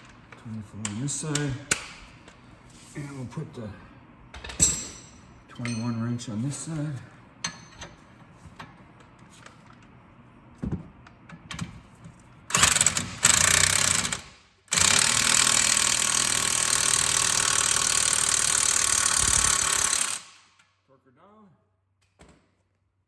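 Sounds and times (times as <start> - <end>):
impact wrench hammering: 12.5 - 20.6.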